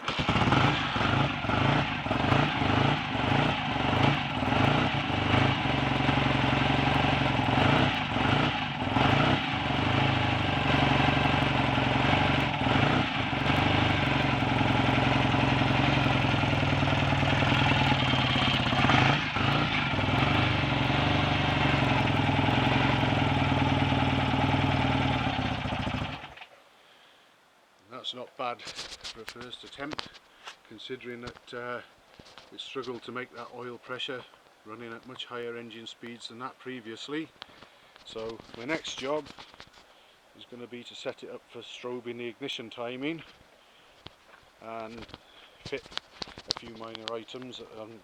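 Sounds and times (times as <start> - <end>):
motorcycle engine starting and idling: 0.0 - 26.5, 38.0 - 39.8, 44.7 - 48.0.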